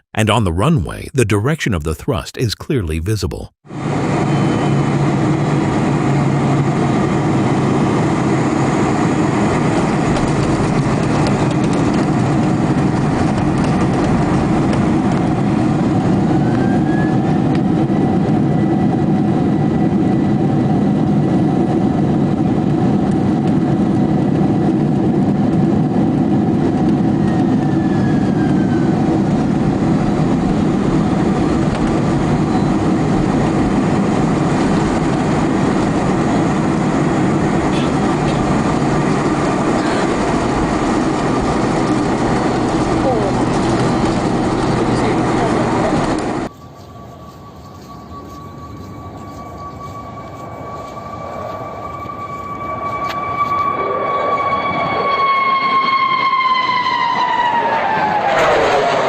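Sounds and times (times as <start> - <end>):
aircraft engines running: 3.3 - 59.0
thin whistle: 46.5 - 53.6.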